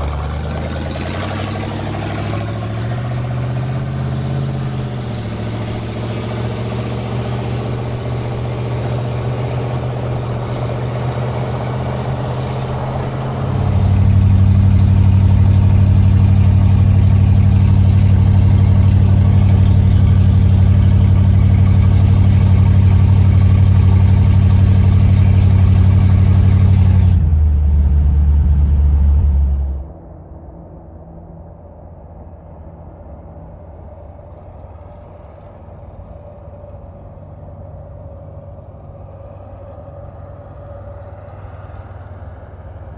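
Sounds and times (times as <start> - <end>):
car engine running: 0.0 - 29.9.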